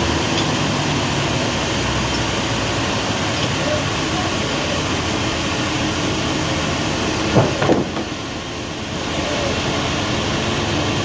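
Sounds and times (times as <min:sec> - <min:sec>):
sawmill machinery running: 0:00.0 - 0:11.0.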